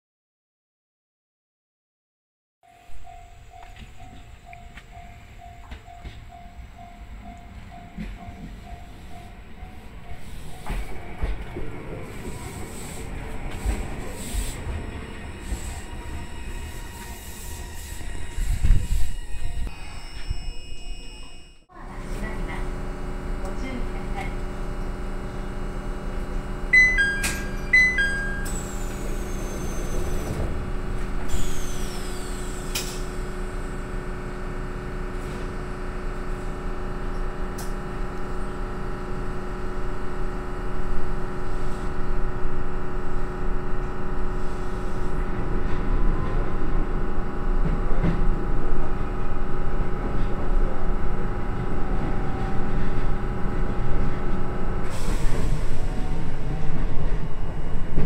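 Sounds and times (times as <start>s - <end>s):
train equipment humming: 2.7s - 58.0s
train running noise: 2.7s - 58.0s
train doors sliding shut: 7.6s - 20.3s, 26.8s - 33.4s, 51.9s - 58.0s
two-tone door chime: 19.4s - 21.7s, 26.7s - 28.7s.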